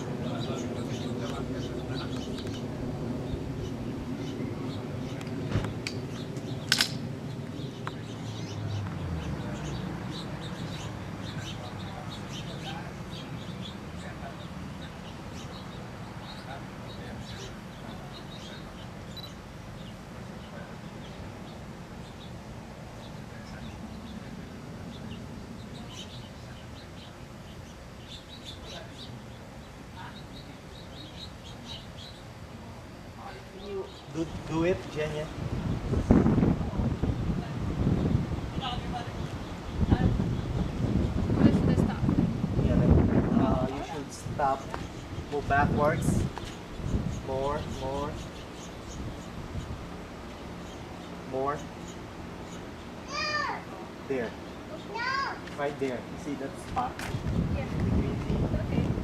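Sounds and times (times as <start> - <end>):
low outdoor rumble: 0.0 - 59.0
songbirds chirping: 0.0 - 59.0
sharp clicks: 5.2 - 7.0.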